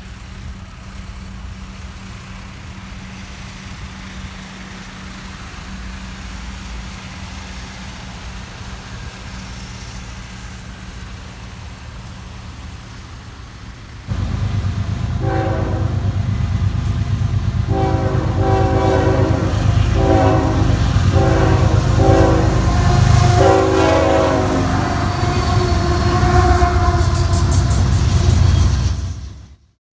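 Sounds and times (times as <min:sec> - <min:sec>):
train horn blasts: 0:14.1 - 0:29.4
locomotive engine rumble: 0:14.1 - 0:29.6.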